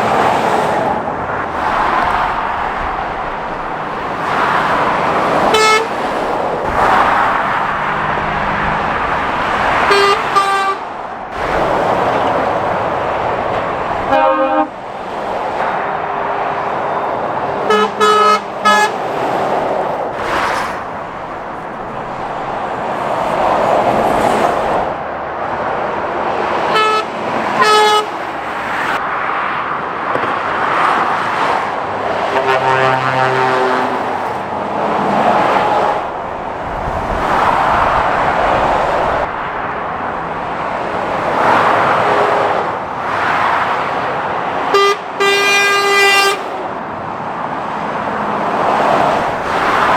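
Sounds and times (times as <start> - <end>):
lorries and cars passing: 0.0 - 49.9
vehicle horns tooting: 4.5 - 10.9, 14.0 - 14.7, 17.6 - 19.1, 26.7 - 28.3, 32.2 - 34.3, 44.6 - 46.6.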